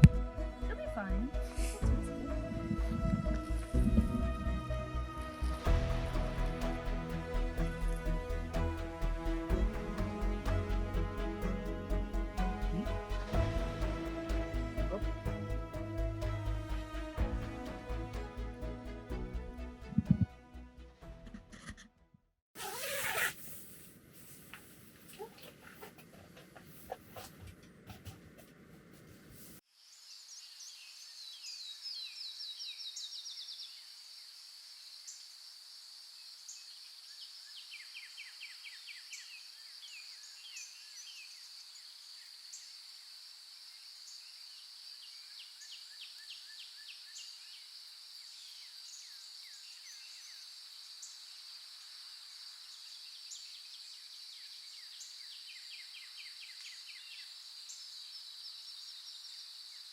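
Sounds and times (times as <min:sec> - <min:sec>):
rapid insect trills: 0:33.7 - 0:59.9.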